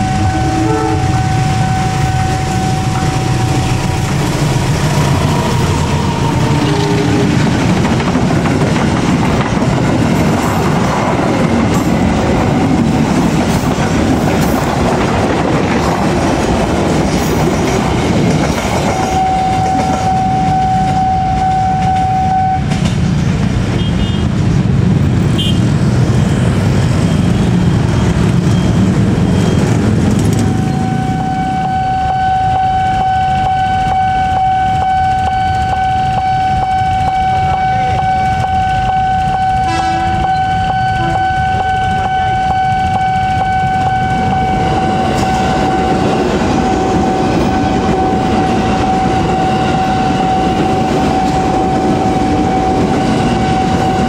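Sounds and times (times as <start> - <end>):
steady high tone: 0.0 - 8.1, 27.3 - 54.0
train wheels rumbling on rails: 0.0 - 54.0.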